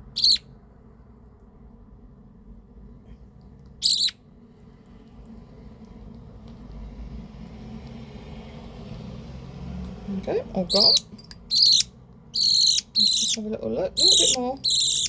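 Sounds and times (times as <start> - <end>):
budgerigar chick begging calls: 0.1 - 0.5, 3.8 - 4.2, 10.6 - 15.0.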